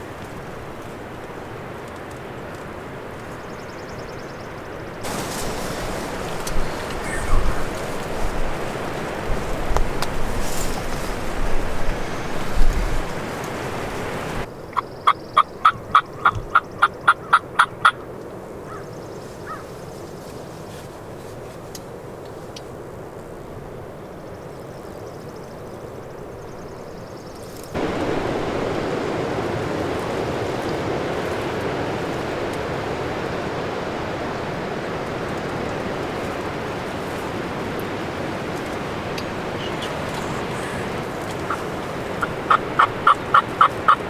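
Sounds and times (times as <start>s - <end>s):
wind noise on microphone: 5.0s - 14.5s, 27.7s - 44.0s
turkey yelps: 6.1s - 9.1s, 15.4s - 18.0s, 39.2s - 44.0s.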